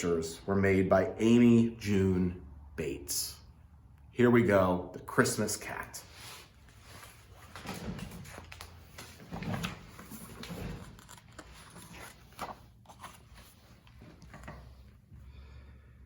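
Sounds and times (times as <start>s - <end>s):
book pages turning: 6.8s - 15.0s.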